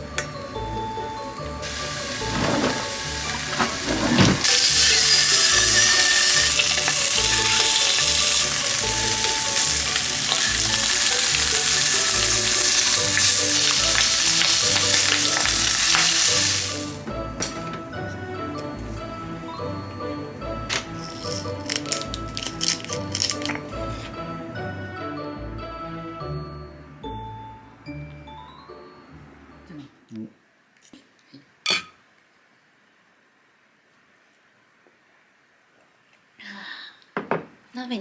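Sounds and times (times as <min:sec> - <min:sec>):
food sizzling in a frying pan: 0:01.6 - 0:17.0.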